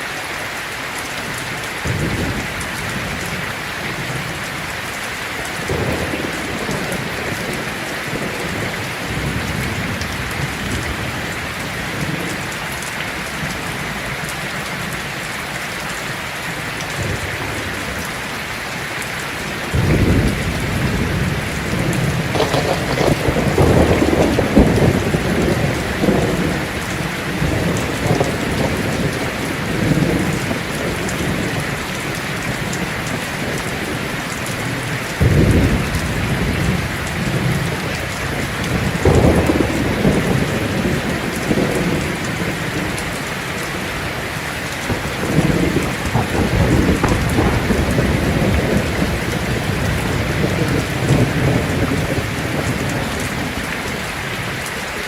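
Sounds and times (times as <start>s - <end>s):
heavy rain on a tin roof: 0.0s - 55.0s
sharp thunder claps: 1.8s - 4.4s, 5.6s - 12.4s, 17.0s - 18.2s, 19.6s - 31.7s, 34.7s - 43.2s, 44.8s - 53.6s
thunder rumbling: 1.8s - 15.0s, 16.9s - 54.7s.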